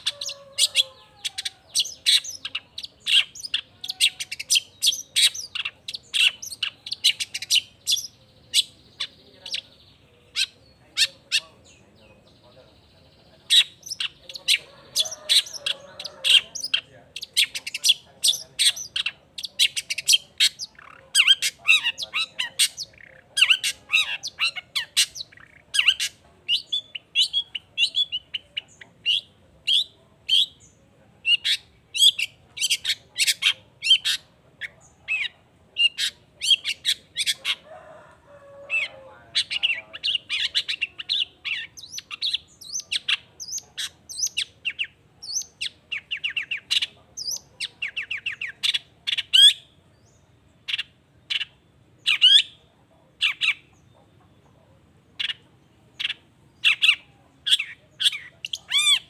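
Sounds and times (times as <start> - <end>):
shrike singing: 0.0 - 53.9.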